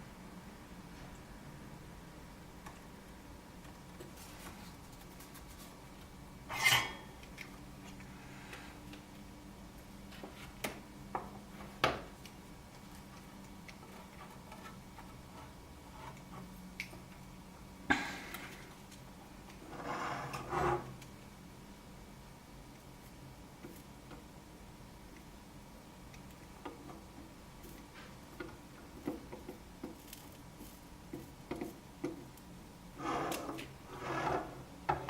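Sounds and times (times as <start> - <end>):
faint steady hum: 0.0 - 35.0
metal tools scraping: 6.5 - 7.1.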